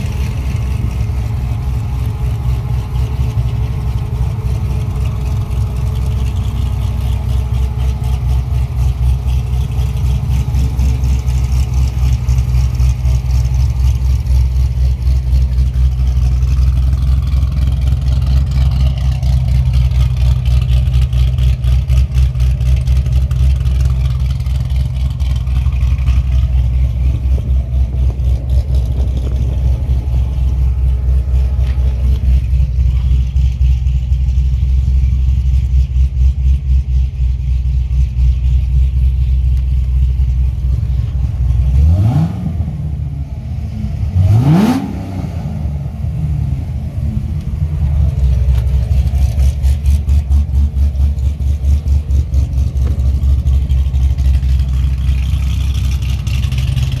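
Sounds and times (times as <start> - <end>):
car engine idling: 0.0 - 57.0
engine revving: 41.0 - 57.0.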